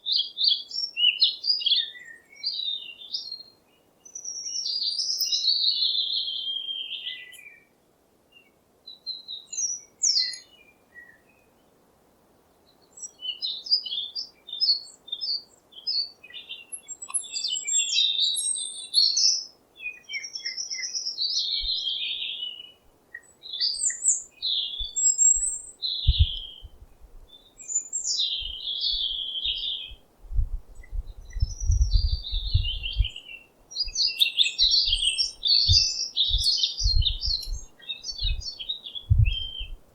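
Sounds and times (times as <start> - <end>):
songbirds chirping: 0.0 - 39.9
low rumble bursts: 30.3 - 33.2.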